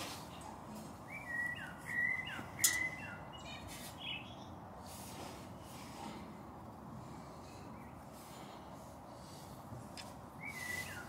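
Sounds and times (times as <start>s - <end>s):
bird chirping whistled notes: 1.1s - 4.5s, 10.4s - 11.0s.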